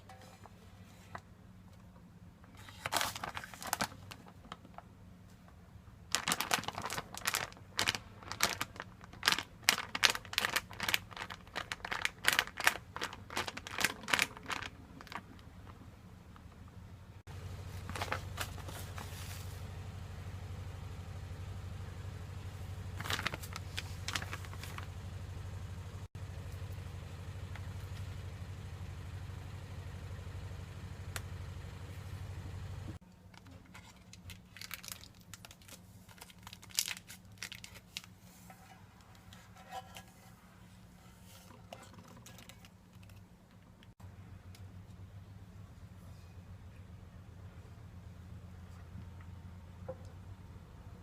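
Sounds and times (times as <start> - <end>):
food packaging rustling: 2.6 - 4.9, 6.1 - 15.8, 17.7 - 19.6, 23.0 - 24.9, 33.3 - 43.8.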